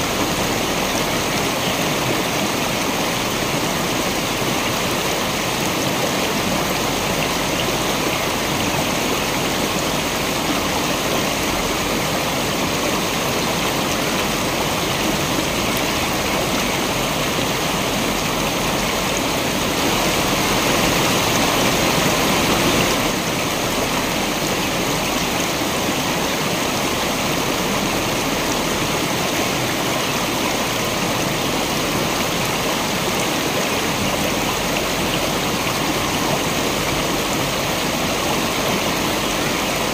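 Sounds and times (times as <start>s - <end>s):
waterfall and stream rushing: 0.0s - 39.9s.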